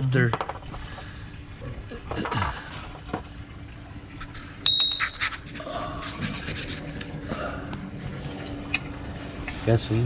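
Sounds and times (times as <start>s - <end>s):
sharp ringing metallic ping: 4.6s - 5.2s.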